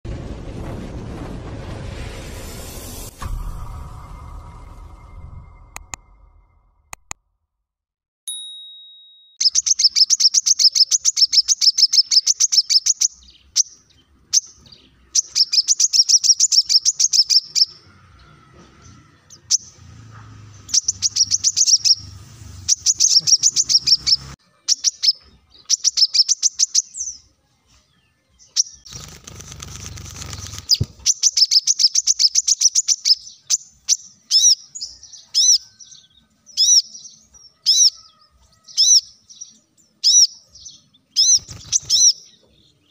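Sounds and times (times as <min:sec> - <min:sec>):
bird chirping trills: 0:08.3 - 0:27.3, 0:28.0 - 0:42.9.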